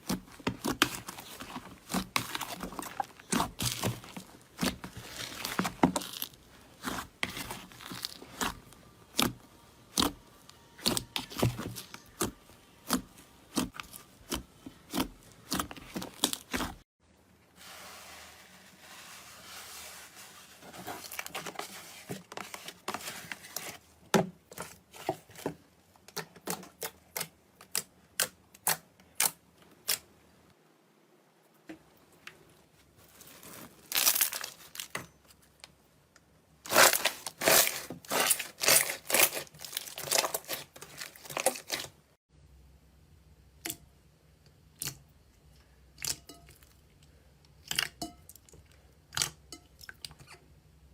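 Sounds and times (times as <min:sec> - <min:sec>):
crunchy material crushed by hand: 0:00.0 - 0:10.2, 0:33.0 - 0:35.0, 0:36.6 - 0:42.0.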